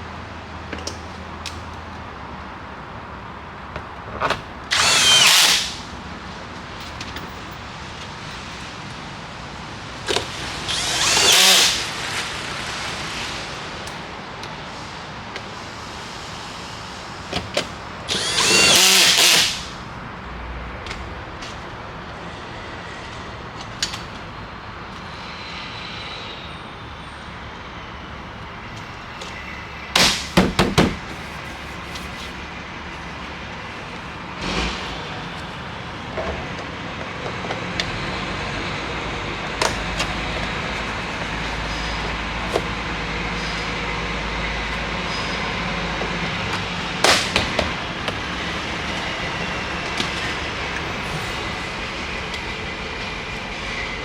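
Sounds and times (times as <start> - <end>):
power drill spinning up: 4.7 - 5.9, 10.1 - 12.3, 18.1 - 19.8.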